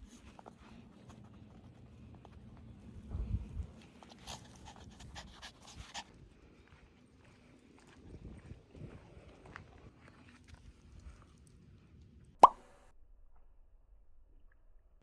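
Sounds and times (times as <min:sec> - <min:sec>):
puppy panting: 0:00.0 - 0:07.4.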